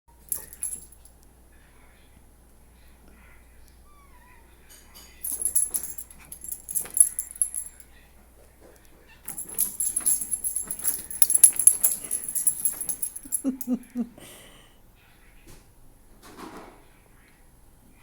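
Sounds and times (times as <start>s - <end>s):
pet collar jingling: 0.1s - 1.1s, 5.0s - 7.9s, 9.3s - 14.0s.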